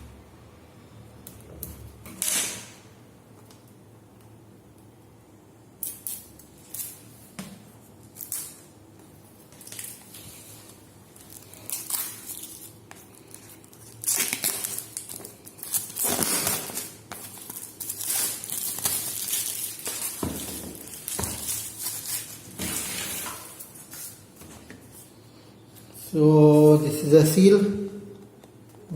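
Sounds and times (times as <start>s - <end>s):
packaging crinkling and scraping: 9.6s - 24.2s.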